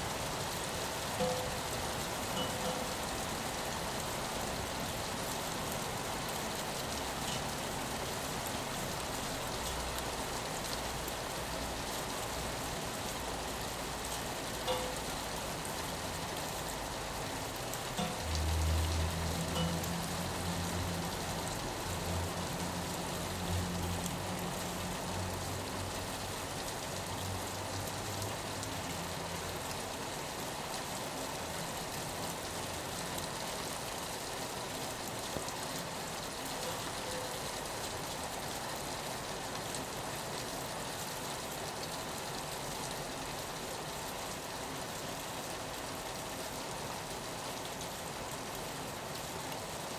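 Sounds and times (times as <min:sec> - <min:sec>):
rain on a window: 0:00.0 - 0:49.9.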